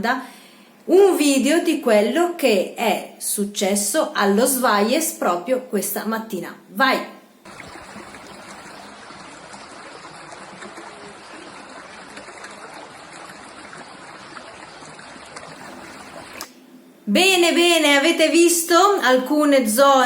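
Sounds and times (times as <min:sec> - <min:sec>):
rainwater flowing: 0:07.4 - 0:16.5.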